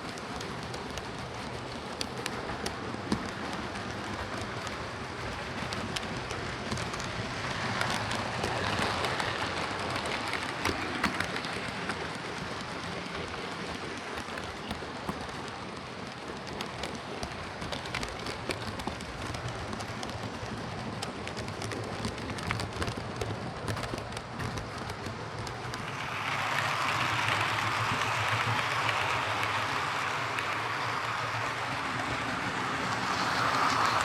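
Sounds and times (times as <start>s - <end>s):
model train motor humming: 24.0s - 34.0s.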